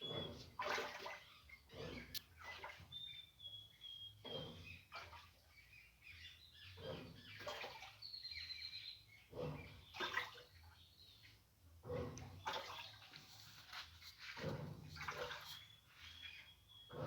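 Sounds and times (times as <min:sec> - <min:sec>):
washing machine agitating water: 0:00.0 - 0:03.0, 0:04.2 - 0:05.6, 0:06.7 - 0:08.0, 0:09.4 - 0:10.6, 0:11.9 - 0:16.0.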